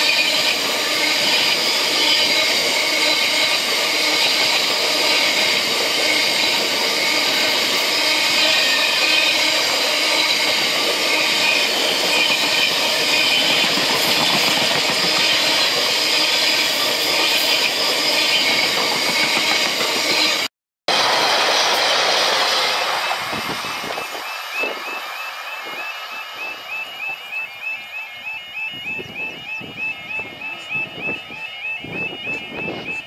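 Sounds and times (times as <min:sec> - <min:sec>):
freight train rumbling past: 0:00.0 - 0:28.2.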